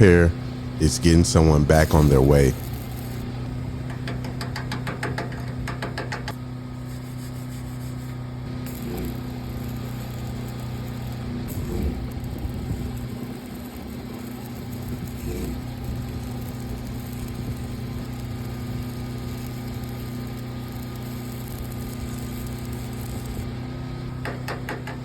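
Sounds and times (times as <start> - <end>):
engine idling: 3.2 - 6.7.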